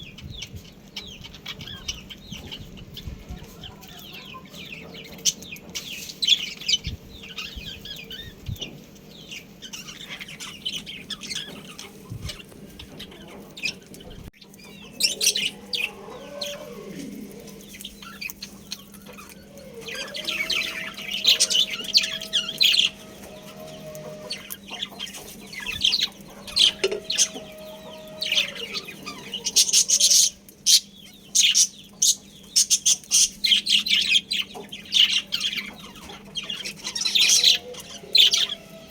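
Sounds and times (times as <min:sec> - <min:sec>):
budgies chirping: 0:00.0 - 0:38.9
chicken calling: 0:09.2 - 0:38.9.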